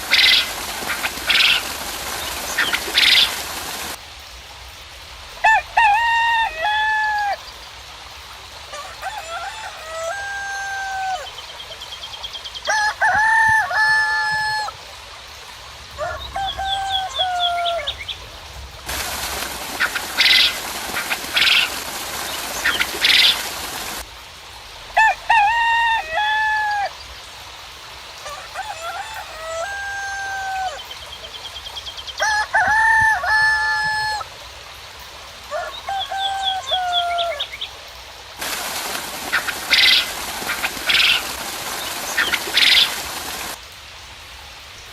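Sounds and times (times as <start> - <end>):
small birds chirping: 0.0 - 4.0, 19.0 - 24.0, 38.8 - 43.5
rain hiss: 0.0 - 44.9
roosters crowing: 5.4 - 7.4, 8.7 - 11.3, 12.7 - 14.8, 16.0 - 18.0, 25.0 - 26.9, 28.2 - 30.9, 32.2 - 34.3, 35.5 - 37.5.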